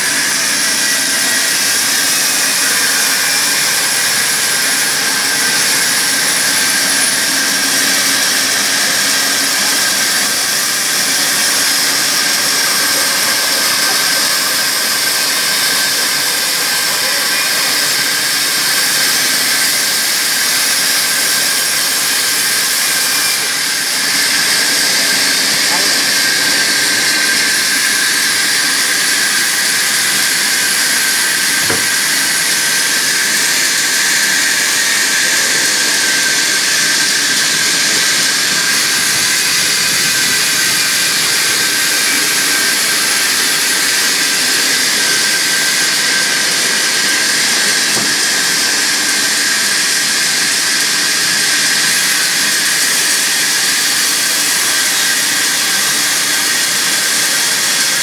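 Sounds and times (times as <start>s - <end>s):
sawmill saw hissing: 0.0s - 58.0s.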